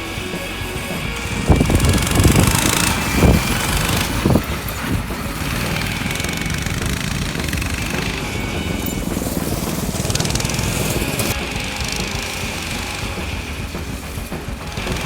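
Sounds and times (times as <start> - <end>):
low thuds: 0.0 - 15.0
mini bike engine running: 0.0 - 15.0.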